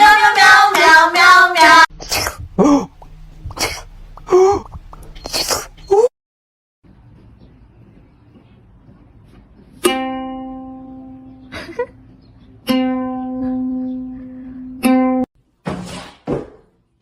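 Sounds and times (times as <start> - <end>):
plucked string instrument notes: 9.8 - 11.5, 12.6 - 15.2.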